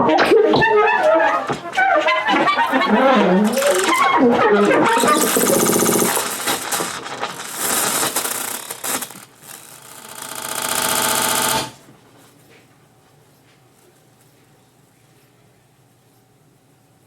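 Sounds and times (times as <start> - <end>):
saxophones and electronics: 0.5 - 11.8.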